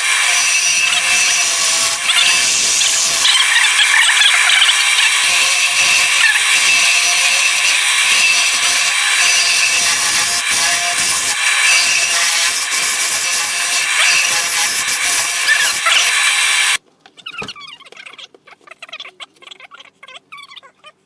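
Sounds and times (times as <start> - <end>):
faint lathe whine: 0.0 - 16.8
tool scraping spinning wood: 0.0 - 16.8.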